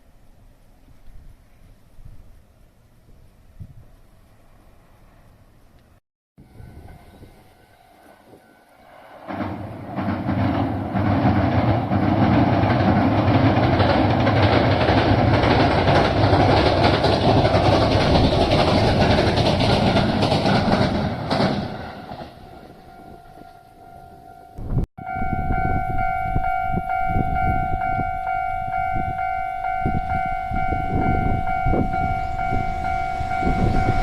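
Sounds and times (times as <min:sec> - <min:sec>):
train wheels clattering over rails: 0:09.1 - 0:23.2.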